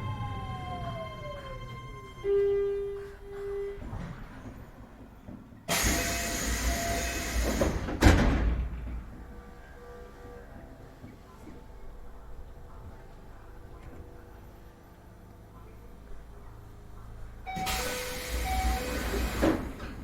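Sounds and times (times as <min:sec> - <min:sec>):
train motor whine: 0:05.7 - 0:08.0, 0:17.5 - 0:20.0
train doors air rush: 0:05.7 - 0:08.9, 0:17.6 - 0:20.0
loud door thud: 0:07.6 - 0:08.9.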